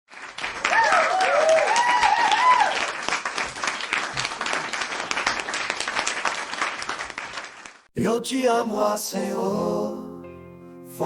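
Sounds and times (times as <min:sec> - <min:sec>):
crowd applauding: 0:00.1 - 0:07.9
voices cheering in whoops: 0:00.7 - 0:02.9.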